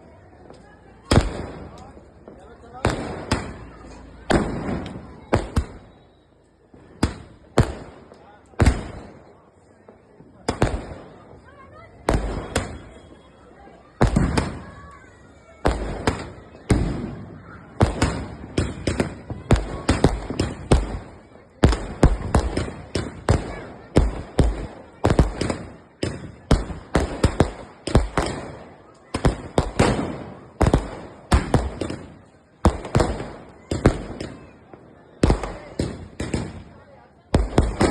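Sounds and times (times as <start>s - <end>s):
fireworks bangs: 0.0s - 37.9s.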